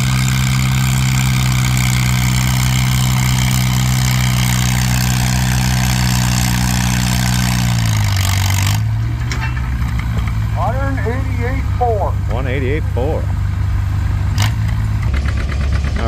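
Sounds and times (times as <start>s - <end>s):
tractor engine under load: 0.0s - 16.0s.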